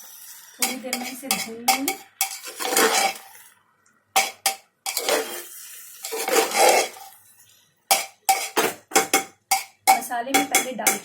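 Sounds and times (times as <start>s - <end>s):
spoon scraping stirs: 0.2s - 3.6s, 4.2s - 11.0s
spoon knocking against pot: 7.9s - 11.0s.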